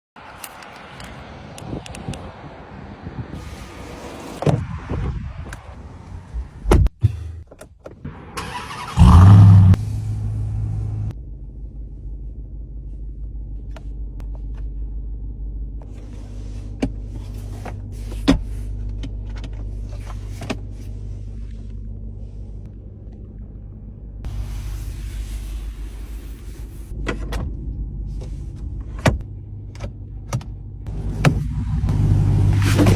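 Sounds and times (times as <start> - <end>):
truck engine starting and idling: 8.1 - 11.4, 30.9 - 32.9.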